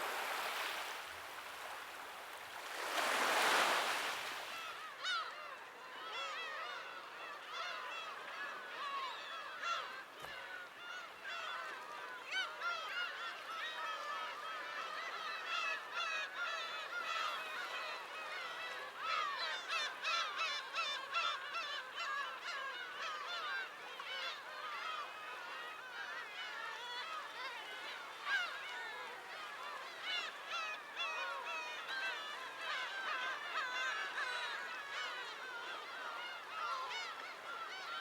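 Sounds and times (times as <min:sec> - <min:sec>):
flock of birds calling: 0:02.6 - 0:05.1.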